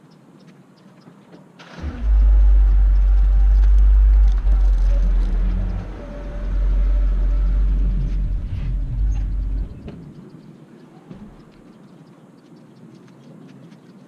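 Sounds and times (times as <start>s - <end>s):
deep rumble: 1.8s - 10.4s
faint clicks: 8.1s - 14.0s.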